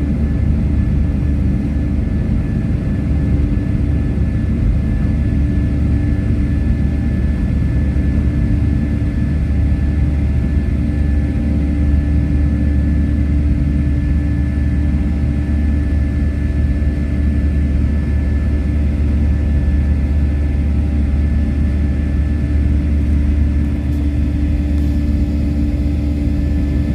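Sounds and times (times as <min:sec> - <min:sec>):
airliner engines rumbling in cabin: 0:00.0 - 0:26.9.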